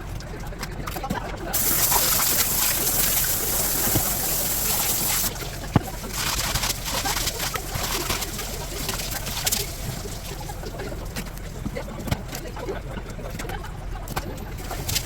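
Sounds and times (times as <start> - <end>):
water running: 1.6 - 5.6, 6.2 - 10.8.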